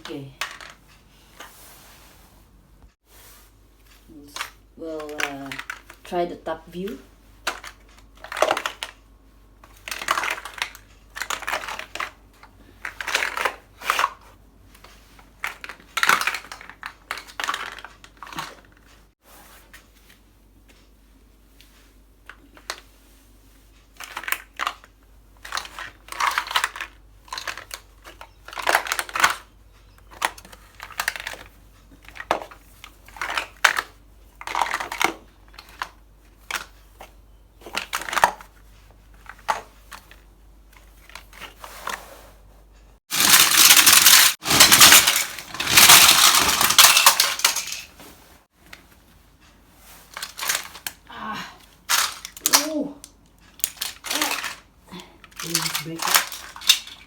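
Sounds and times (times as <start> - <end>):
plastic blocks clattering underfoot: 0.0 - 1.5, 3.9 - 19.0, 23.8 - 38.6, 43.1 - 48.8, 50.0 - 51.1, 51.8 - 57.0.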